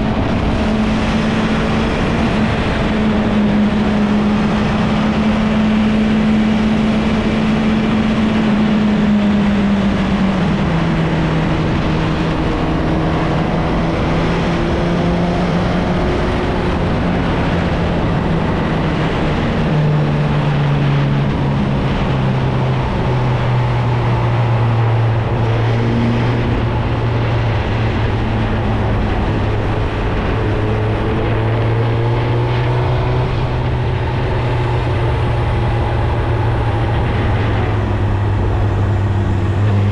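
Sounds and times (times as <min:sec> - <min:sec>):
wind noise: 0:00.0 - 0:39.9
motorcycle engine running: 0:33.3 - 0:39.9.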